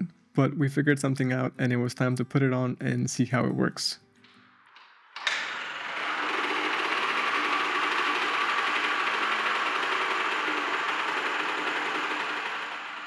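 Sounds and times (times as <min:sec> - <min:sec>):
two-stroke engine running: 0:05.4 - 0:13.0.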